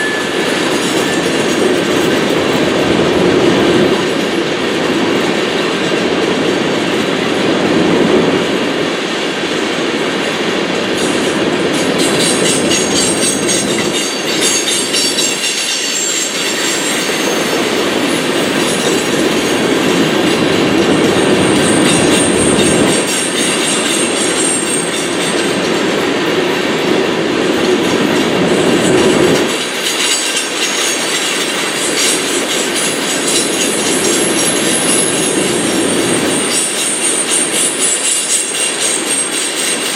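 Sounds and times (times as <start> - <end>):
faint high wheel squeal: 0.0 - 2.0, 12.0 - 19.1, 30.0 - 39.9
train wheels clacking over rails: 0.0 - 39.9.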